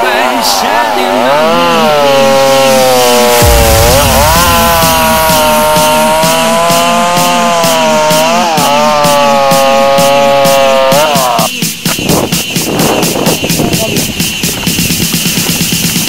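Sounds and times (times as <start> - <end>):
chainsaw running at full throttle: 1.6 - 11.2
music with steady beat: 2.2 - 16.0.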